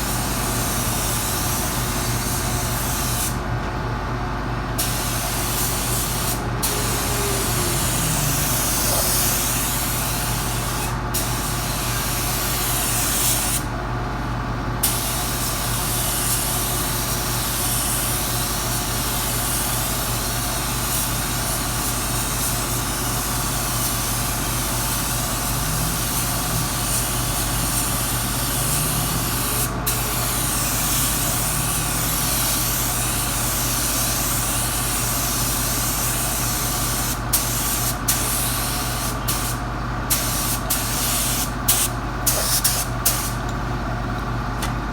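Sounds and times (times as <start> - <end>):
steady low hum: 4.4 - 10.2, 23.0 - 34.3
paint spray gun hissing: 4.8 - 11.4, 19.2 - 43.4.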